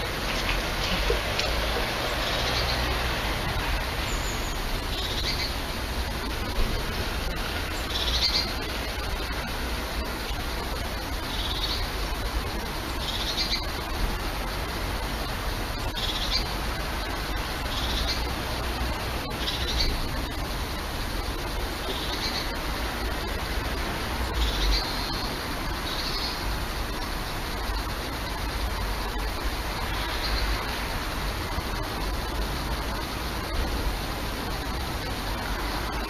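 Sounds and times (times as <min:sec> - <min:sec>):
steady outdoor noise: 0:00.0 - 0:36.0
small bird chirping: 0:04.0 - 0:05.6.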